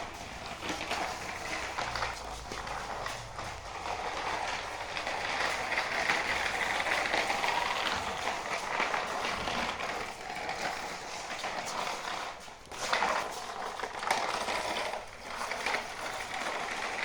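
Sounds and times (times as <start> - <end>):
rapid mechanical clicking and rattling: 0.0 - 17.0.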